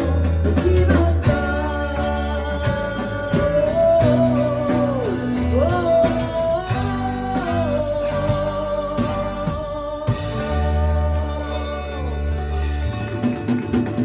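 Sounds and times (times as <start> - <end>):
bending lead melody line: 0.0 - 14.0
live band playing a ballad: 0.0 - 14.0.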